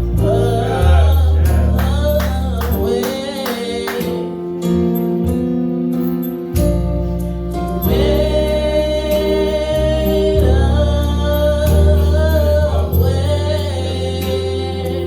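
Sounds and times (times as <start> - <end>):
bass line: 0.0 - 5.7, 6.6 - 15.0
guitar accompaniment: 0.0 - 15.0
voices singing with vibrato: 0.1 - 4.4.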